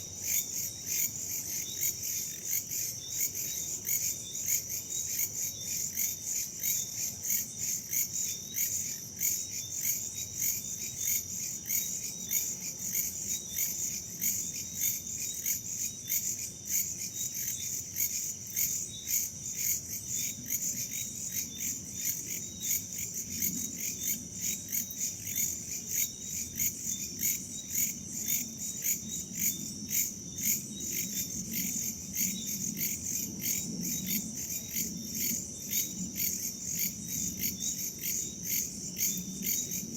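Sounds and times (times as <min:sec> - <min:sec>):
crickets and insects chirping: 0:00.0 - 0:39.9.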